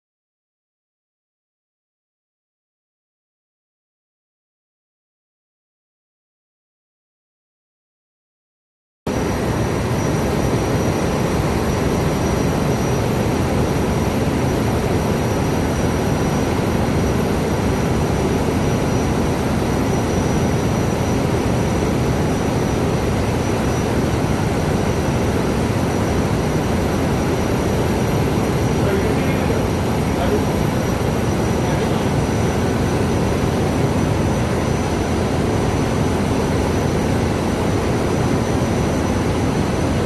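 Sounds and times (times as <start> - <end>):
engine-room machinery drone: 9.1 - 40.0
faint high whine: 9.1 - 40.0.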